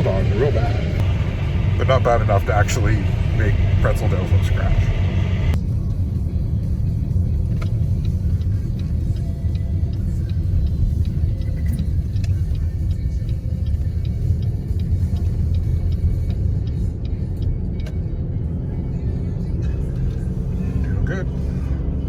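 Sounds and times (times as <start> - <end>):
road rumble inside car: 0.0 - 22.0
faint light ticks: 7.5 - 18.2.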